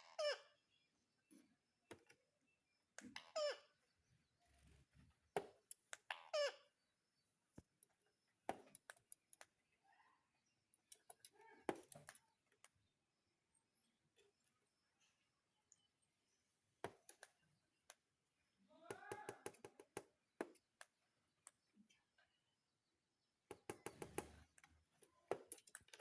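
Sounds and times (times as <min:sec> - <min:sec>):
parakeet calls: 0:00.0 - 0:00.6, 0:03.1 - 0:03.8, 0:06.1 - 0:06.9
sharp clicks and taps: 0:07.5 - 0:09.6, 0:10.7 - 0:12.8, 0:16.8 - 0:18.0.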